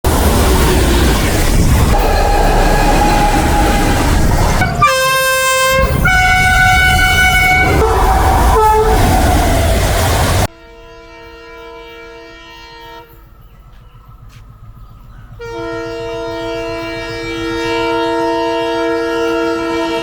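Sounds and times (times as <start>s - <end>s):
train wheels rumbling on rail: 0.0s - 20.0s
locomotive multi-tone horn: 1.9s - 13.5s, 15.3s - 20.0s.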